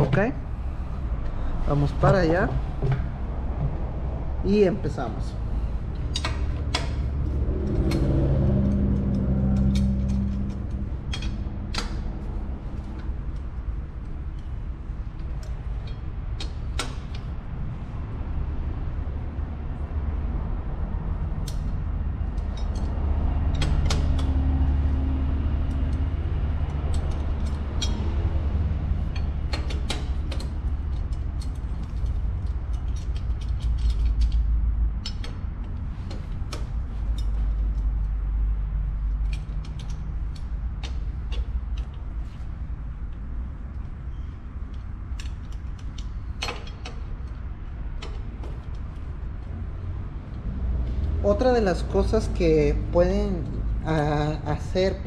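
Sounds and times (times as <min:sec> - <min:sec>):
steady low rumble: 0:00.0 - 0:55.0
ratchet and wrench clicking: 0:21.4 - 0:42.6.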